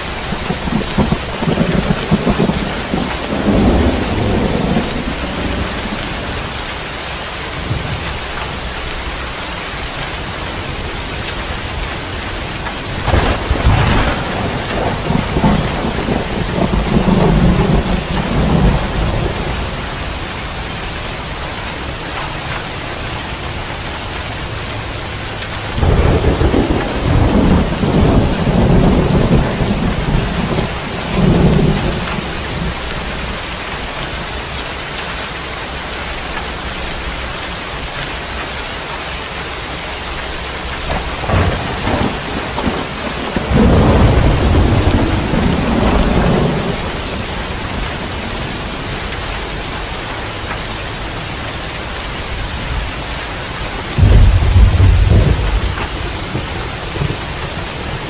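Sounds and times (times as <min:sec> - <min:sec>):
thunder rumbling: 0:00.0 - 0:06.8, 0:09.8 - 0:22.2, 0:25.3 - 0:34.5, 0:40.4 - 0:58.0
steady rain: 0:00.0 - 0:58.0.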